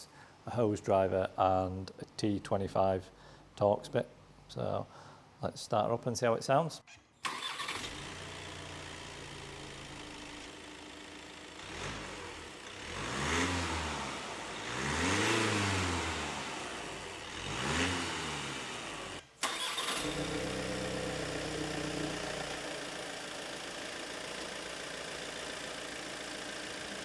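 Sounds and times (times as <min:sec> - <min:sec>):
diesel engine idling and revving: 0:07.8 - 0:27.0.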